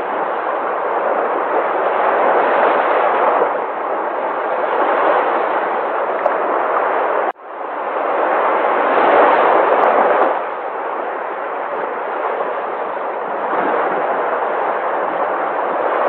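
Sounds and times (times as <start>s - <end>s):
sea waves surging and breaking: 0.0s - 16.0s.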